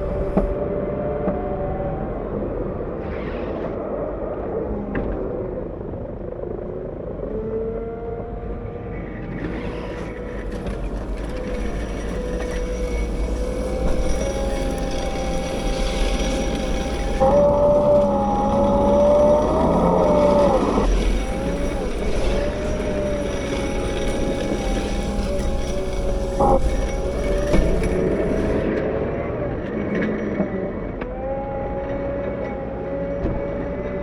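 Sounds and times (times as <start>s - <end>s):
wheel loader diesel engine rumbling: 0.0s - 2.7s, 9.4s - 29.9s
hydraulic whine sliding in pitch: 0.0s - 4.9s, 7.3s - 29.7s.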